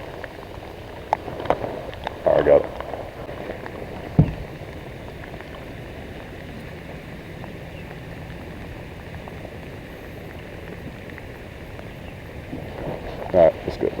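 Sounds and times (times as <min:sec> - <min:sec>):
steady rain hiss: 0:00.0 - 0:14.0
low thump: 0:04.1 - 0:04.6.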